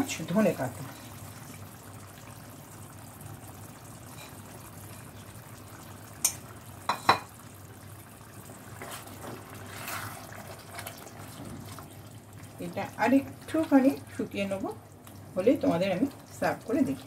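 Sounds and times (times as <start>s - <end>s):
curry simmering with low hiss: 0.0s - 17.0s
spoon stirring and scraping: 8.7s - 12.0s.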